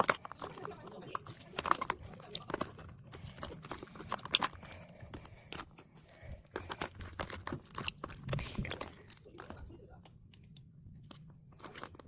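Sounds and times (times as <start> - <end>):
potato chips crunching: 0.0 - 5.7, 6.6 - 9.7.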